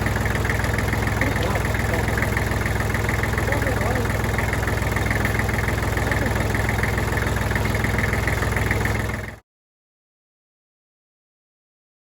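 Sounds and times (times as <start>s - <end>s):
tractor engine idling: 0.0s - 9.4s.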